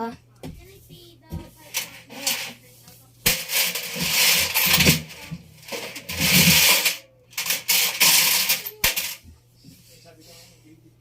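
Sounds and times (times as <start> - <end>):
metal objects rattling in washing machine: 1.6 - 2.6, 3.2 - 9.3.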